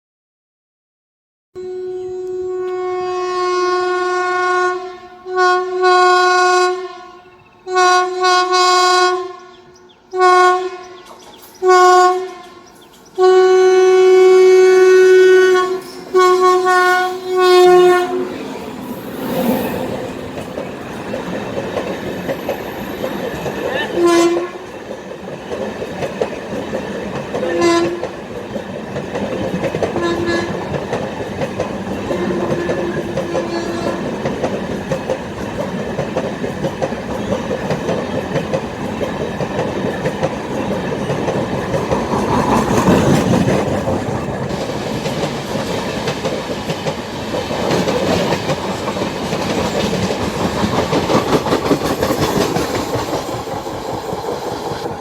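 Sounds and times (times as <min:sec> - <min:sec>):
locomotive horn blasts: 0:01.6 - 0:11.0, 0:11.6 - 0:12.6, 0:13.2 - 0:18.6, 0:23.9 - 0:24.6, 0:27.4 - 0:28.1, 0:30.0 - 0:30.8, 0:32.1 - 0:34.1
train rushing past: 0:02.1 - 0:55.0.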